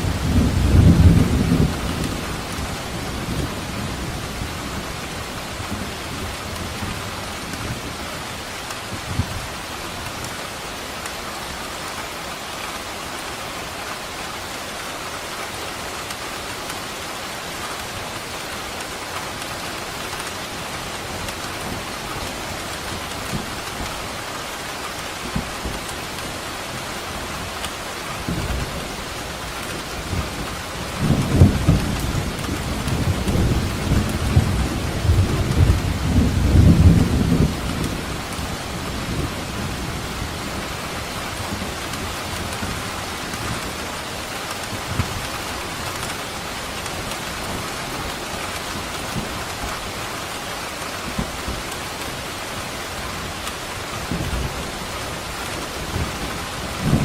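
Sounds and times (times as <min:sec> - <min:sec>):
thunder rumbling: 0:00.0 - 0:08.0, 0:28.2 - 0:43.8, 0:50.8 - 0:57.0
heavy rain falling: 0:00.0 - 0:57.0.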